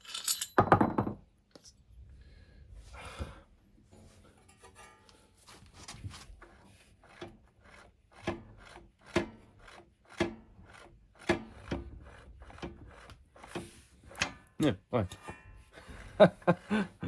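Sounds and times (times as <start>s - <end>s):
hand tool scraping: 4.0s - 17.0s.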